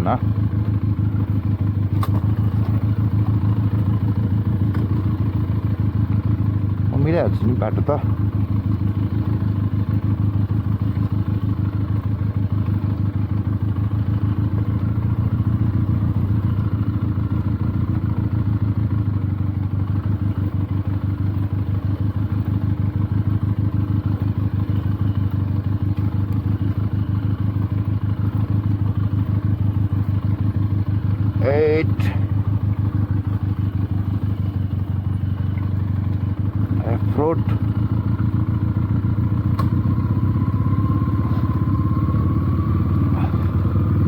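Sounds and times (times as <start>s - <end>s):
motorcycle engine at low revs: 0.0s - 44.0s.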